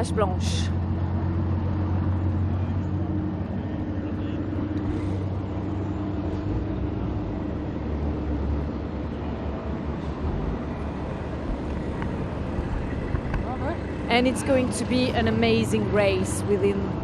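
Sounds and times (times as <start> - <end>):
diesel truck engines droning: 0.0 - 17.0.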